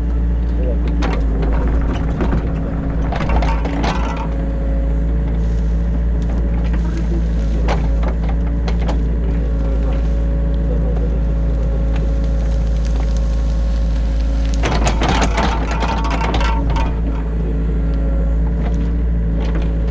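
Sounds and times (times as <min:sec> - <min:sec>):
excavator diesel engine running: 0:00.0 - 0:19.9
sharp clicks and knocks: 0:00.4 - 0:04.6, 0:05.2 - 0:19.9
loud clattering: 0:01.0 - 0:04.6, 0:14.6 - 0:17.4.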